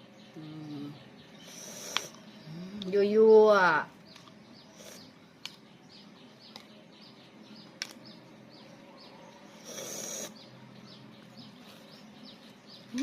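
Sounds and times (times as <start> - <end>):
small bird chirping: 0.0 - 13.0.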